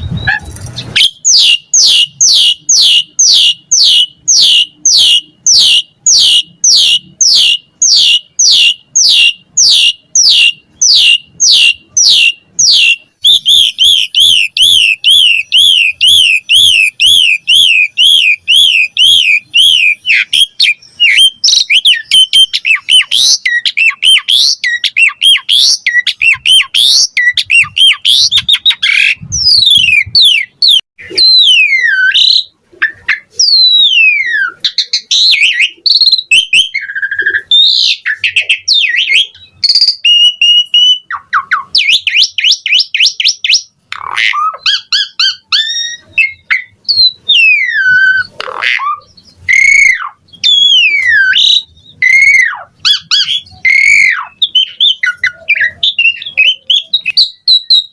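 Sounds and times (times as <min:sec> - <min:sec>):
starling singing: 0:00.0 - 0:57.9.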